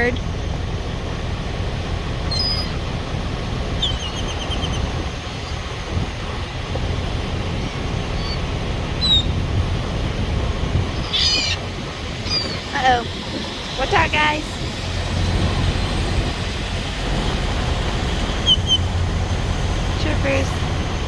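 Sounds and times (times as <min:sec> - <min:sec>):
steady low rumble: 0:00.0 - 0:21.0
small songbird chirping: 0:02.3 - 0:02.8, 0:03.8 - 0:04.9, 0:08.1 - 0:09.4, 0:11.0 - 0:13.8.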